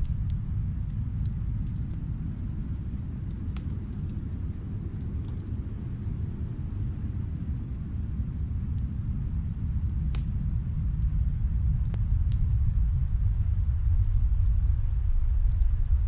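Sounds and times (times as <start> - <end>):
low rumble: 0.0 - 16.0
wood fire crackling: 0.0 - 16.0
sharp pops of fire: 9.9 - 10.4.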